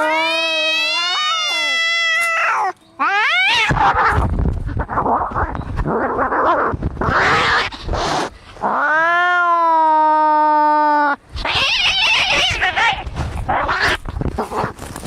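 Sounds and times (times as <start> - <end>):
cat yowling: 0.0 - 4.2, 8.7 - 14.0
cats growling and hissing: 0.0 - 15.0.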